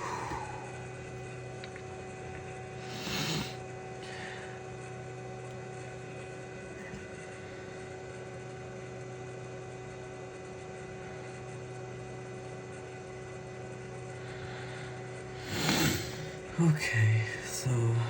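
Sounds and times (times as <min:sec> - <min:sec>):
blower motor whirring: 0:00.0 - 0:04.9, 0:13.3 - 0:18.0
low electrical hum: 0:00.0 - 0:18.0.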